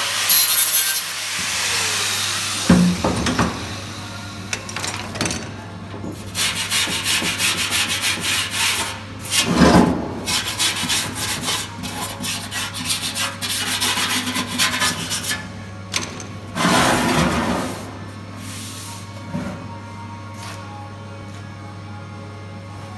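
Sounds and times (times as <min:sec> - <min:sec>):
sanding sheet metal: 0:06.3 - 0:09.6, 0:10.2 - 0:15.5.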